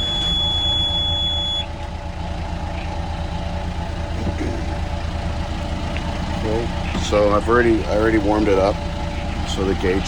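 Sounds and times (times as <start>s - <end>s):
high alarm tone: 0.0s - 1.8s
boat engine idling: 0.0s - 10.0s.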